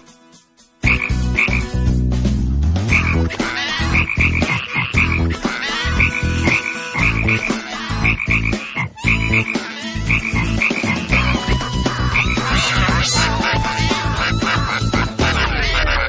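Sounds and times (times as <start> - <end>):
cartoon frog croaks: 0.8 - 1.7, 2.9 - 16.0.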